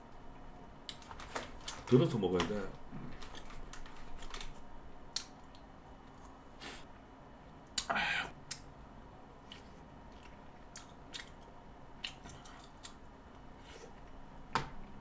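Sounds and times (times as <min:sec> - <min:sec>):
chewing and mouth noises: 0:09.4 - 0:13.0.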